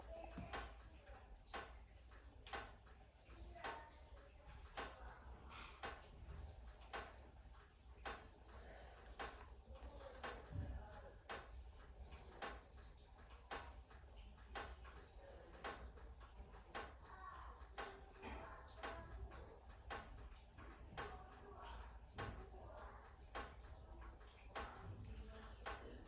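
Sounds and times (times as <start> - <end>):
faint ticking: 0.0 - 26.0
irregular clicks: 0.4 - 10.6.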